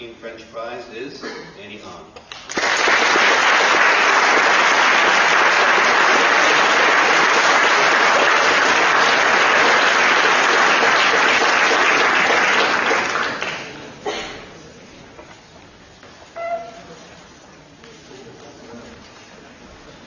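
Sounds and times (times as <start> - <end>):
audience applauding: 2.3 - 13.9.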